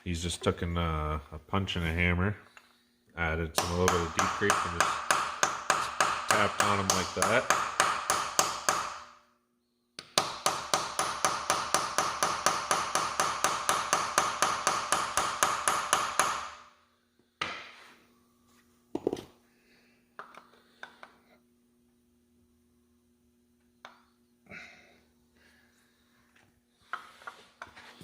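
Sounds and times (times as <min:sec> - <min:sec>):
hammer tapping metal punch: 0:03.6 - 0:09.1, 0:10.0 - 0:16.6.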